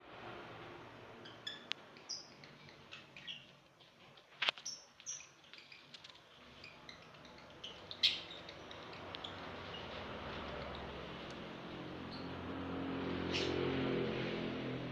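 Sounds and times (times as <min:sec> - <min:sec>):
birds chirping: 0:01.2 - 0:03.7, 0:04.5 - 0:13.8.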